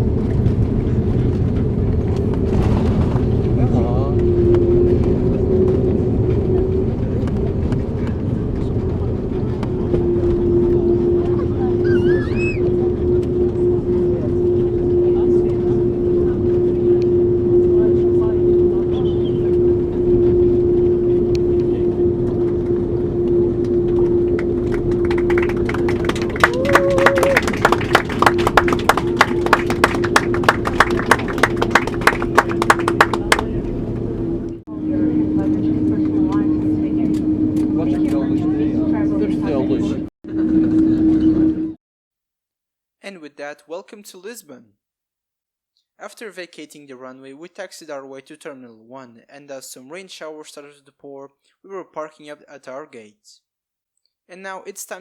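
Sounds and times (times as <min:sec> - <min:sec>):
aircraft cabin engine rumble: 0:00.0 - 0:41.7
steady hum: 0:00.0 - 0:41.8
passengers clapping: 0:24.3 - 0:34.1.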